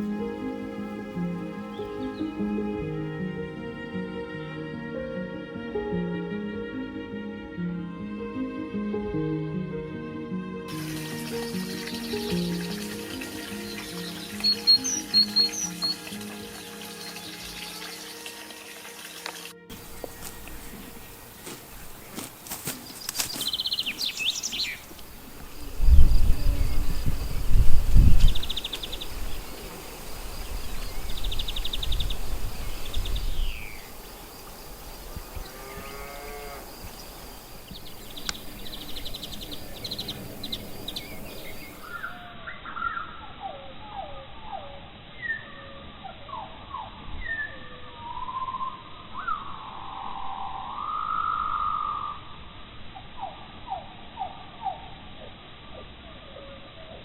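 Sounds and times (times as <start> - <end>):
insects stridulating: 10.7 - 42.8
songbirds whistling and warbling: 10.8 - 22.2, 22.8 - 36.0, 36.8 - 52.2.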